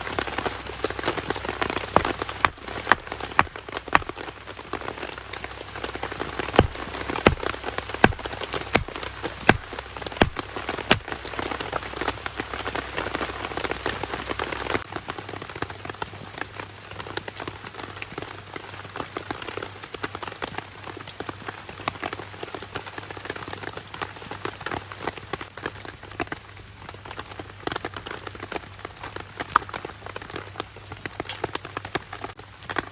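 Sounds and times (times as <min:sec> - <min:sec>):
rain pattering on a tarp: 0:00.0 - 0:32.9
heavy drops striking: 0:06.6 - 0:11.1.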